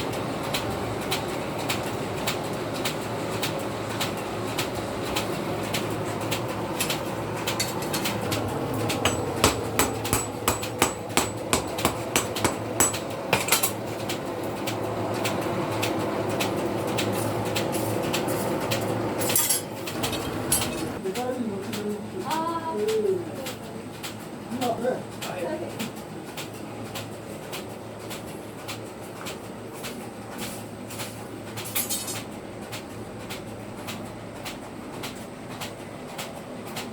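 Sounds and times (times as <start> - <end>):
steady hum: 4.1 - 14.4
hammer striking steel on anvil: 8.8 - 13.8.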